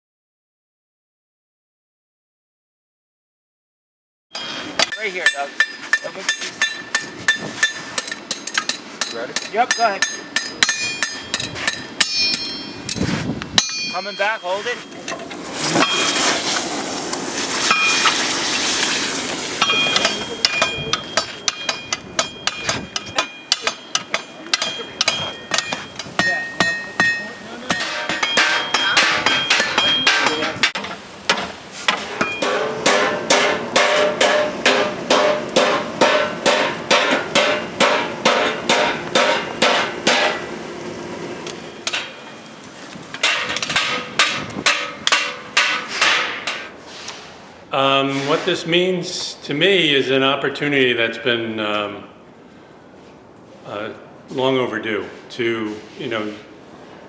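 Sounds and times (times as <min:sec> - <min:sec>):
anvil ringing: 0:04.4 - 0:13.0, 0:13.6 - 0:16.3, 0:19.6 - 0:30.8, 0:32.1 - 0:40.4
hammer blows on hot steel: 0:04.4 - 0:16.8, 0:17.4 - 0:40.6, 0:41.4 - 0:46.7.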